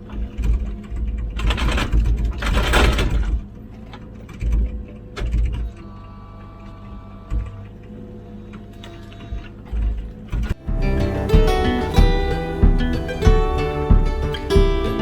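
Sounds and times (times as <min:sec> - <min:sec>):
mini excavator running: 0:00.0 - 0:15.0
low thuds: 0:10.4 - 0:15.0.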